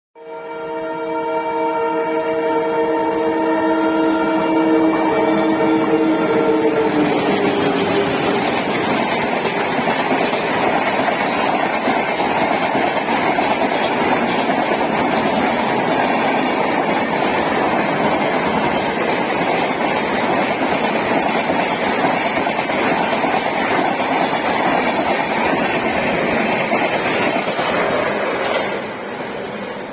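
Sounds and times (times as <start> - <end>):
train horn: 0.2 - 8.8
train rumbling on rails: 0.3 - 29.9.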